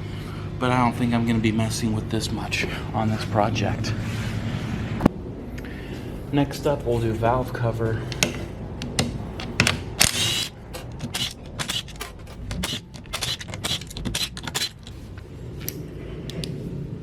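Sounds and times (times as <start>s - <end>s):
hand tools clicking on bolts: 8.1s - 15.0s.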